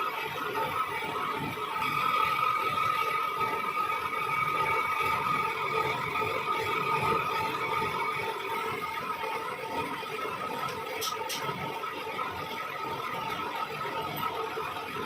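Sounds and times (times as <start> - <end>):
metal lathe running: 0.0 - 15.0.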